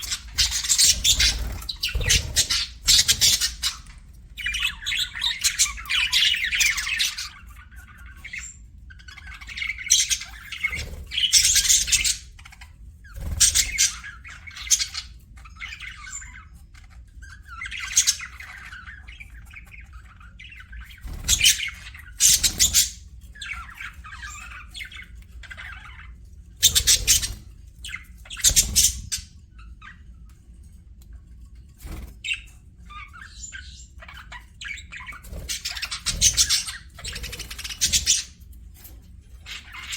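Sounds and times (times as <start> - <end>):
budgerigars chattering and warbling: 0.0 - 30.3, 31.6 - 39.9.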